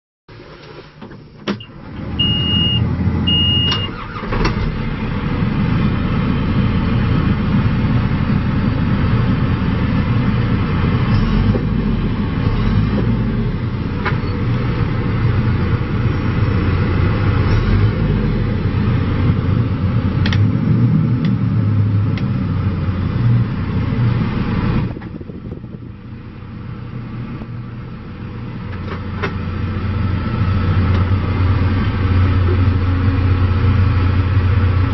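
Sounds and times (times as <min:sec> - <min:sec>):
diesel engine running: 0:00.3 - 0:34.9
short high beeps: 0:02.2 - 0:04.0.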